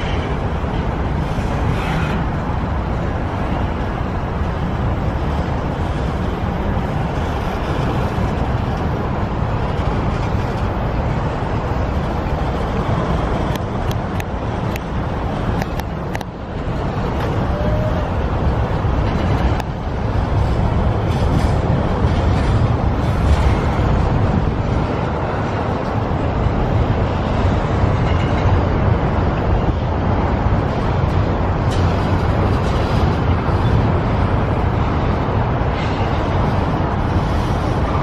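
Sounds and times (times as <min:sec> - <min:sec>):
train wheels rolling on rails: 0:00.0 - 0:38.0.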